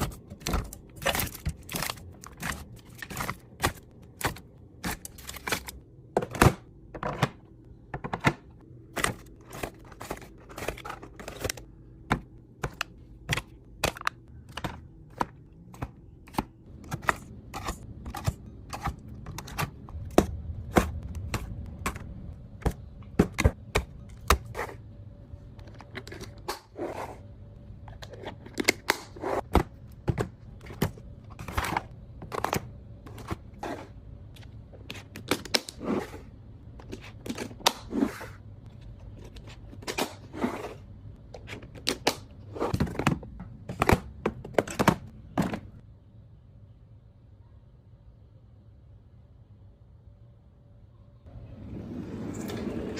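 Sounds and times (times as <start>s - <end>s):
faint low hum: 0.0s - 52.9s
jars and lids clicking on shelves: 41.4s - 45.8s.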